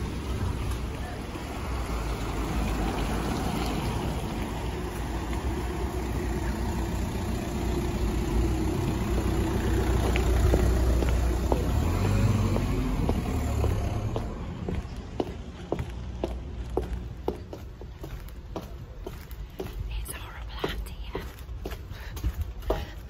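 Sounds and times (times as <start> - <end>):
car engine running: 4.6 - 14.4.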